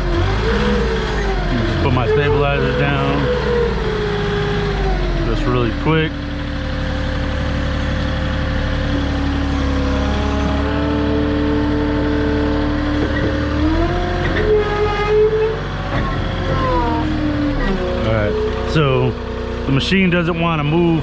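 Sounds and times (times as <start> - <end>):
hydraulic tones sliding in pitch: 0.0 - 12.3, 12.9 - 15.6
forklift engine under load: 0.0 - 21.0.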